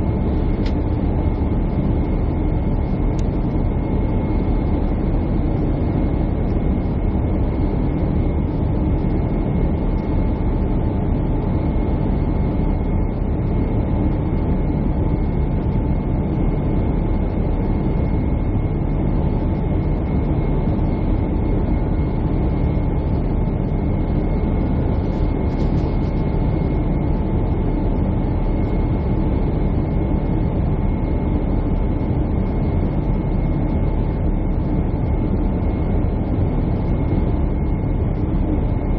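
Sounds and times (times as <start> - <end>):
jet engine cabin rumble: 0.0 - 38.9.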